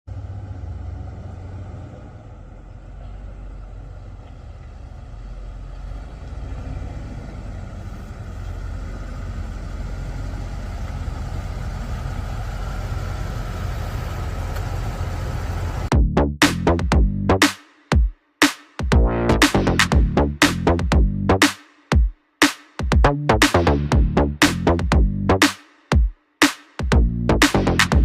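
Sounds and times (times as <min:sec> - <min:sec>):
car engine rumbling: 0:00.0 - 0:17.4, 0:18.9 - 0:21.4.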